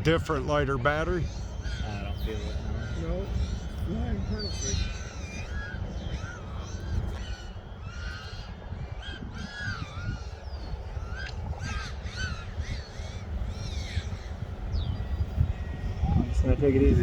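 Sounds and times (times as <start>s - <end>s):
birds calling: 0.0s - 17.0s
steady low rumble: 0.0s - 17.0s.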